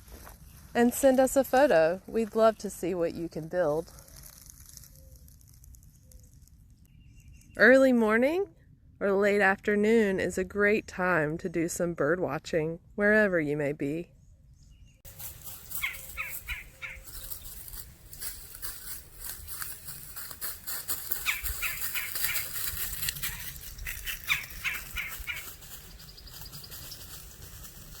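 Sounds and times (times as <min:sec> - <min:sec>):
birds calling: 0:14.8 - 0:18.2, 0:20.9 - 0:28.0.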